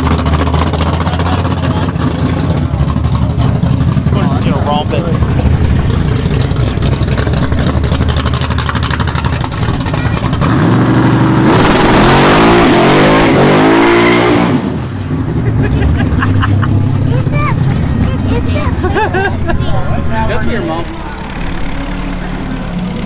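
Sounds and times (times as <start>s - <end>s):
engine idling and revving: 0.0s - 23.0s.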